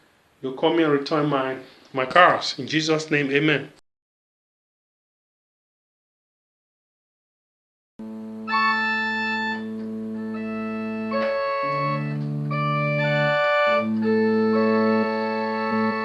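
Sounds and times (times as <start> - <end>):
organ-style keyboard chords: 8.0 - 16.0.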